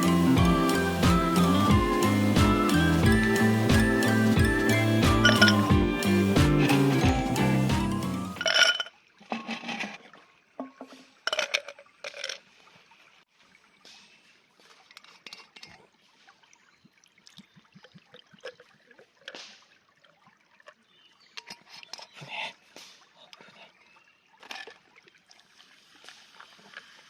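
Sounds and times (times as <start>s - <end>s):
liquid pouring and trickling: 0.0s - 13.8s, 14.6s - 22.2s, 24.2s - 27.0s
glass clinking: 2.6s - 8.9s.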